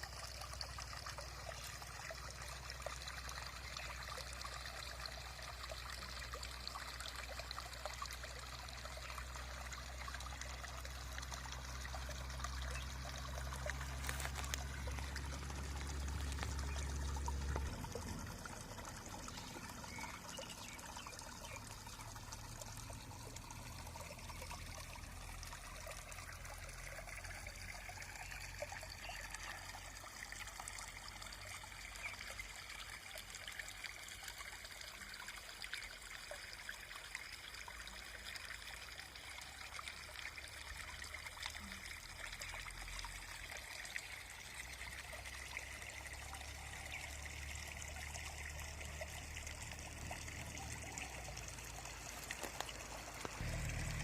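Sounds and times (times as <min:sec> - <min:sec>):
water trickling: 0:00.0 - 0:54.0
faint low rumble: 0:49.7 - 0:54.0.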